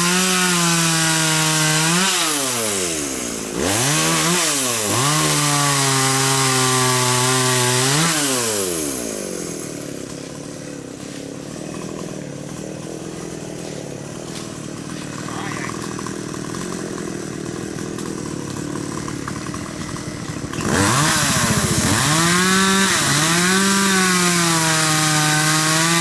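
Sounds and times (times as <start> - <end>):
chainsaw cutting timber: 0.0 - 26.0.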